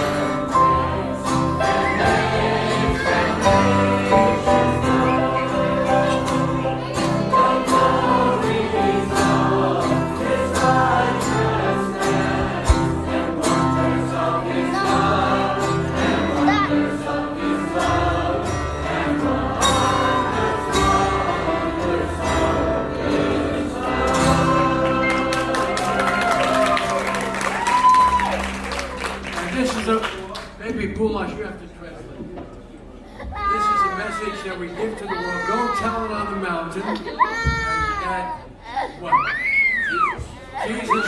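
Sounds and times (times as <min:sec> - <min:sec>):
choir singing a carol: 0:00.0 - 0:27.5.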